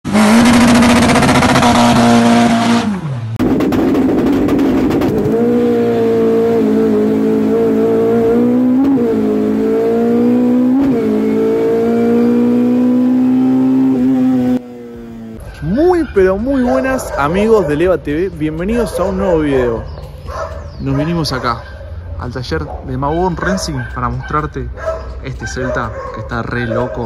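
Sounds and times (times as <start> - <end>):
car engine revving: 0.0 - 15.7.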